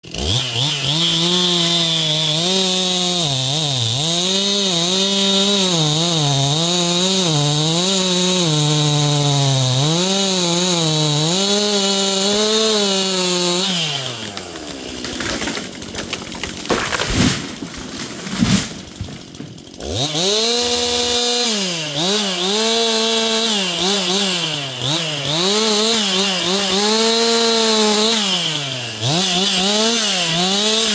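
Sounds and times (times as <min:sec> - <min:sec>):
chainsaw running at high revs: 0:00.0 - 0:18.0, 0:18.8 - 0:30.9
cracks and knocks: 0:14.4 - 0:19.7.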